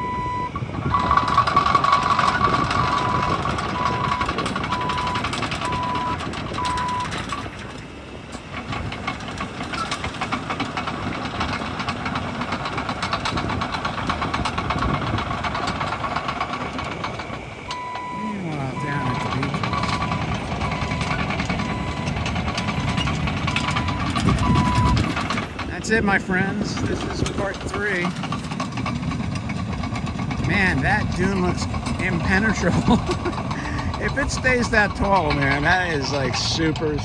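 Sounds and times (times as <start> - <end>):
backup alarm beeping: 0.0 - 1.4, 2.3 - 7.2, 17.7 - 25.0
diesel engine rattling: 0.0 - 37.0.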